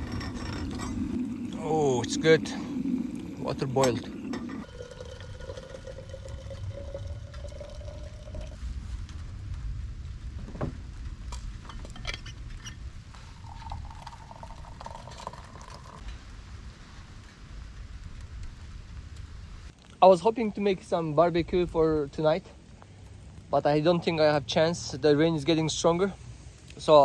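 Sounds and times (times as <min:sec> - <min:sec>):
water pouring into a cup: 0:00.0 - 0:08.6, 0:13.4 - 0:16.0
low rumble: 0:00.0 - 0:14.2.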